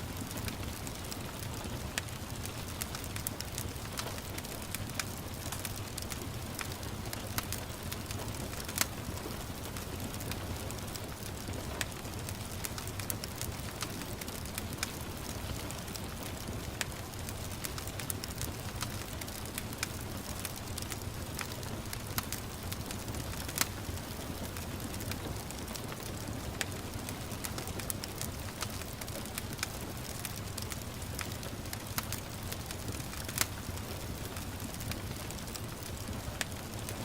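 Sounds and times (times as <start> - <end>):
gentle rain hissing: 0.0 - 37.0
low rumble of fire: 0.0 - 37.0
wood fire crackling: 0.0 - 37.0.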